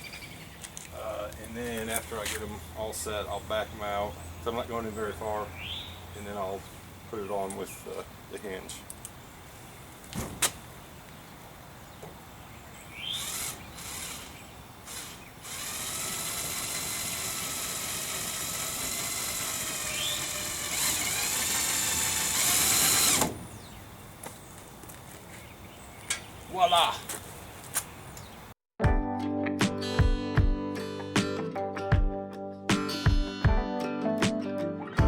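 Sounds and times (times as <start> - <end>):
electric drill into metal: 13.2 - 23.4.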